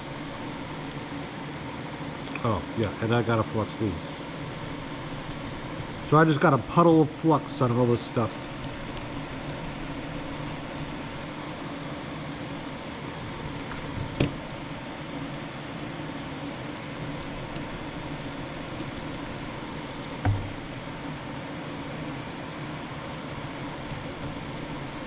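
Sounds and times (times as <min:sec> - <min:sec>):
mechanical hum: 0:00.0 - 0:25.0
low thump: 0:20.2 - 0:20.6.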